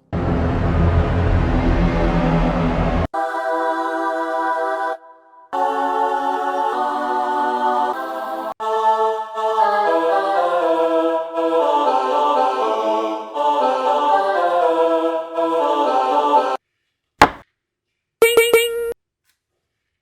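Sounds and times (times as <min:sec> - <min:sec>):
choral music: 0:03.2 - 0:16.6.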